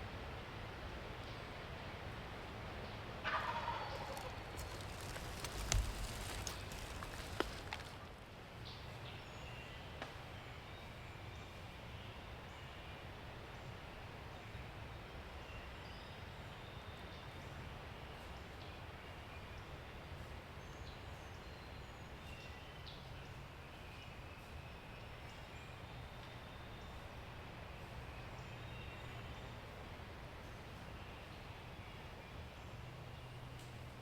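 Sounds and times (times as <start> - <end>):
low rumble and hiss: 0.0 - 34.0
songbird chirps: 2.6 - 13.0.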